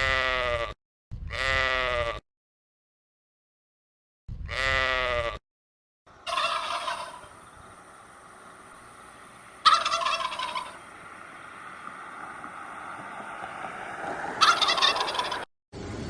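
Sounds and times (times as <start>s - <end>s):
farm bird rattling call: 6.2s - 12.0s, 14.4s - 15.5s
steady background hiss: 6.2s - 14.0s.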